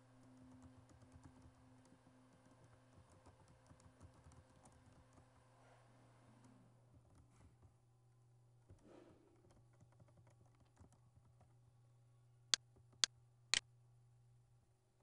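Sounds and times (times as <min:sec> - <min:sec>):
keyboard typing: 0:00.2 - 0:05.3.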